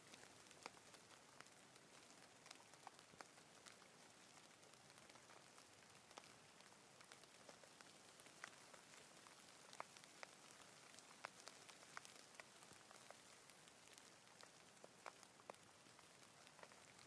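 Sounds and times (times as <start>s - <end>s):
soft rain with ticking drops: 0.0s - 17.0s.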